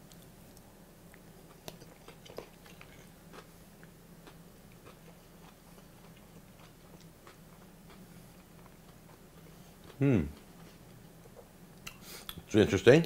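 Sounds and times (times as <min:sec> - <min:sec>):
man chewing: 0:00.0 - 0:12.4
low steady hum: 0:00.0 - 0:13.0.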